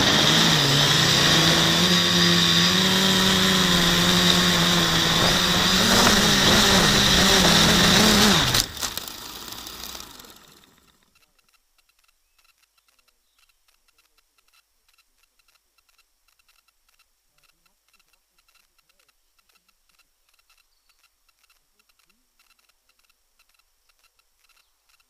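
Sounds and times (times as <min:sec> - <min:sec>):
drone motors humming: 0:00.0 - 0:11.0
faint regular ticking: 0:03.3 - 0:25.0.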